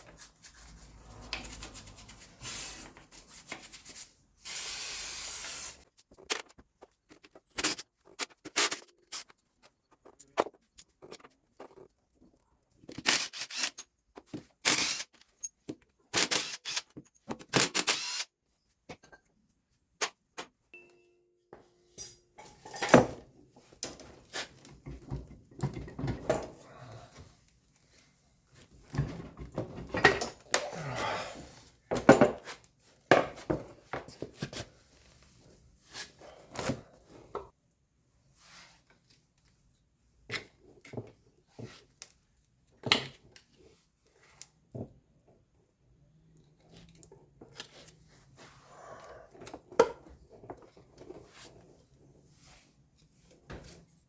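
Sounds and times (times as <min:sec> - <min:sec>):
spray hiss: 0:04.4 - 0:05.8
tools clinking and scraping metal: 0:21.9 - 0:26.6.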